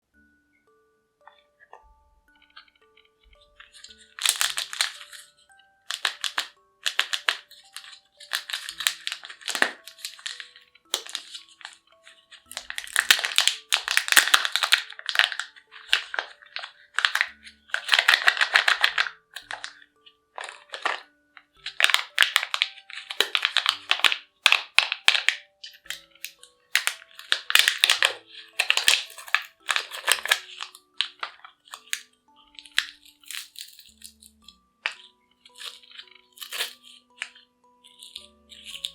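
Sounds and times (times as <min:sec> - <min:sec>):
faint music: 0:00.0 - 0:38.9
wrappers crinkling: 0:02.4 - 0:38.9.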